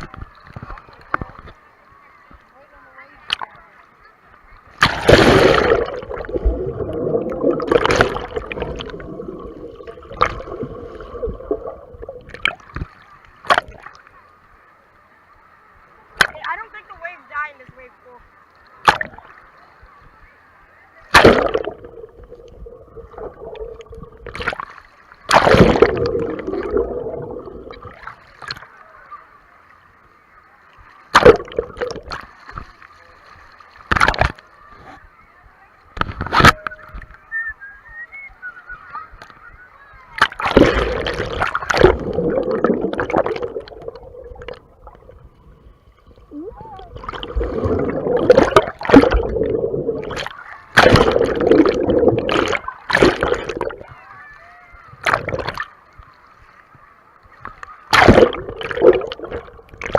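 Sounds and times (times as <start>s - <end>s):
muffled water sloshing: 4.7s - 14.0s, 21.1s - 28.7s, 40.0s - 54.1s, 55.0s - 56.8s, 57.4s - 59.9s
sharp water splashes: 4.7s - 14.0s, 18.8s - 19.4s, 21.1s - 28.7s, 31.1s - 32.7s, 33.8s - 34.4s, 40.1s - 45.2s, 46.8s - 53.9s, 55.0s - 55.7s, 57.9s - 59.9s.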